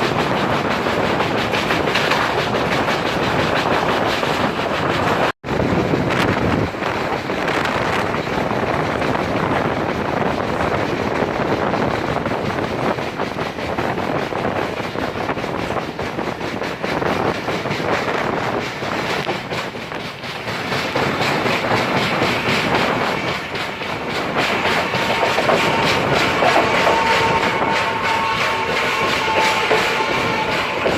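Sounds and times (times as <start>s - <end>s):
train rushing noise: 0.0s - 30.9s
train wheels clattering on rails: 0.0s - 30.9s.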